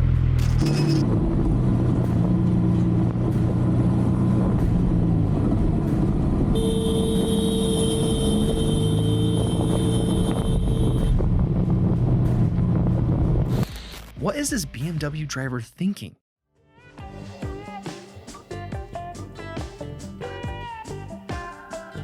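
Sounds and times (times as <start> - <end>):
vehicle engine running: 0.0 - 13.6
long horn blast: 6.5 - 11.3.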